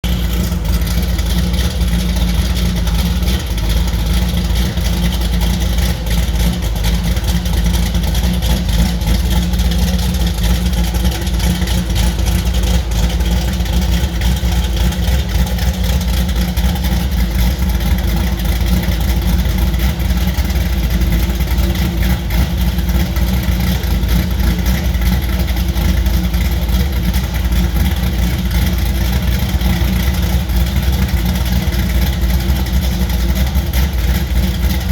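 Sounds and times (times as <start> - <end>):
car engine idling loud: 0.0 - 34.9.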